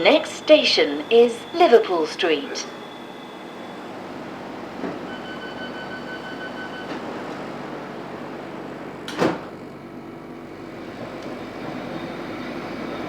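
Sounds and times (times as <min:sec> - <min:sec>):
rapid high warning beeps: 0:00.0 - 0:07.9
train carriage hum: 0:00.0 - 0:13.0
sliding doors shutting thud: 0:04.7 - 0:09.8.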